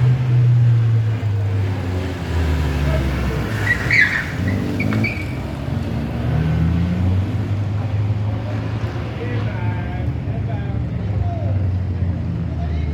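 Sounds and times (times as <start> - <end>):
car engine revving: 0.0 - 12.9
high-pitched squeal: 3.4 - 5.5.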